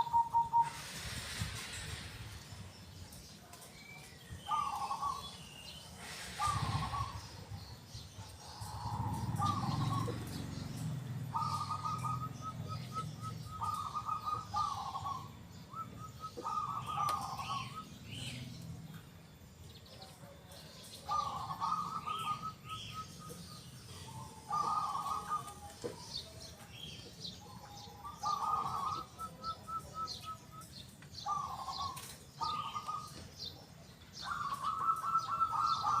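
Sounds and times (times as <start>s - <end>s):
dove cooing: 0.0s - 1.0s, 4.5s - 5.3s, 6.1s - 7.6s, 8.2s - 18.4s, 21.0s - 26.2s, 27.4s - 33.2s, 34.2s - 36.0s
small birds chirping: 0.0s - 36.0s.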